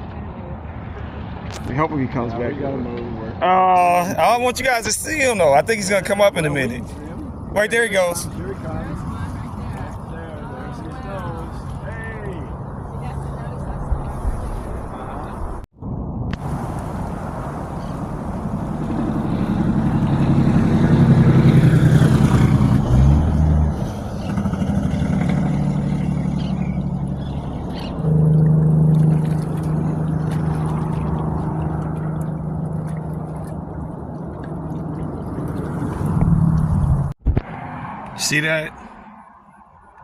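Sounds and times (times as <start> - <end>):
vehicles passing: 0.0 - 15.7, 16.3 - 40.0
steady engine drone: 16.3 - 37.1.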